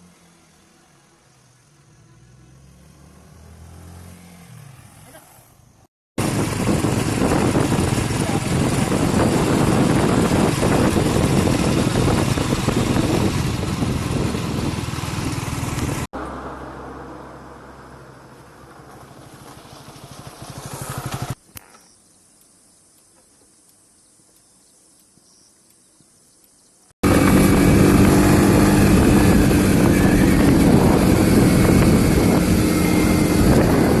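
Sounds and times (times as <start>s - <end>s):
engine and road noise: 0.0s - 22.0s, 27.0s - 34.0s
vehicle engine pulsing: 6.2s - 21.4s, 27.0s - 34.0s.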